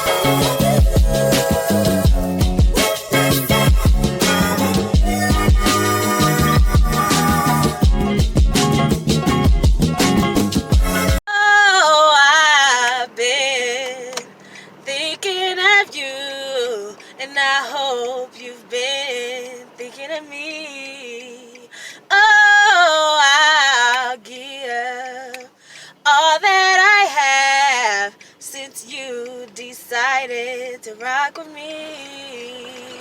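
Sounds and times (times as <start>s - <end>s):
woman singing: 0.0s - 7.9s, 11.3s - 33.0s.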